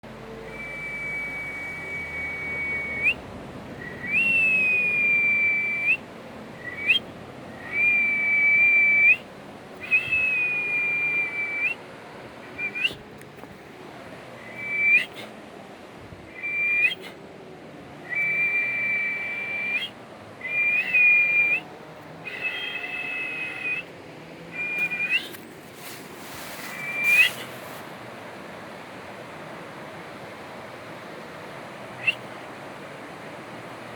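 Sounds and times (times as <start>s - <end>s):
person whistling high notes: 16.4s - 17.1s, 24.6s - 25.4s, 26.7s - 27.4s
steady hiss: 25.3s - 33.9s.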